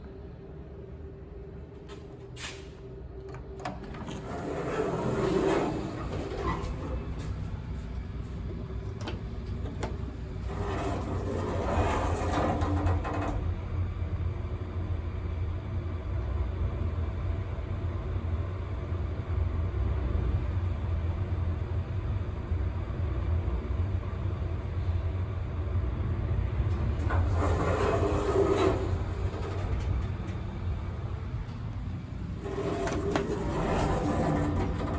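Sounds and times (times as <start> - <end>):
elevator travelling hum: 0.0 - 34.9
elevator doors grinding: 3.1 - 13.8, 26.3 - 34.9.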